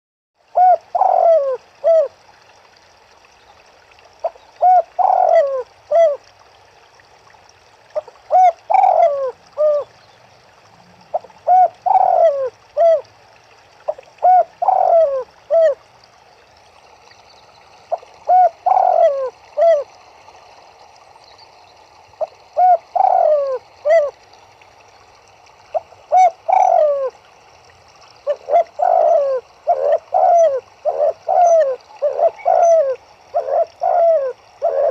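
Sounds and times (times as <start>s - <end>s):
faint steady hiss: 0.4s - 34.9s
turtledoves cooing: 0.6s - 2.1s, 4.6s - 6.2s, 8.0s - 9.9s, 11.0s - 13.0s, 13.9s - 15.8s, 17.9s - 19.8s, 22.6s - 24.1s, 26.1s - 27.1s, 28.3s - 34.9s.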